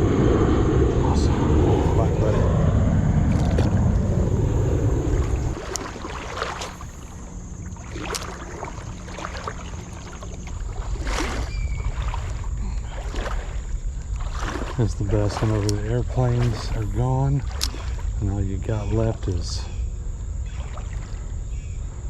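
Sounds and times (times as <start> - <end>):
water splashing and sloshing: 0.0 - 19.7, 20.4 - 21.7
insect drone: 0.0 - 22.0
low rumble: 0.0 - 22.0
bird chirp: 11.4 - 12.1, 21.4 - 21.9.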